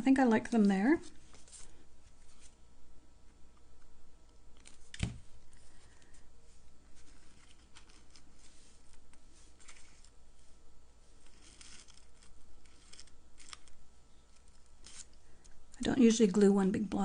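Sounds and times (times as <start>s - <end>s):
paper rustling: 0.5s - 2.6s, 6.8s - 10.2s, 11.1s - 15.2s.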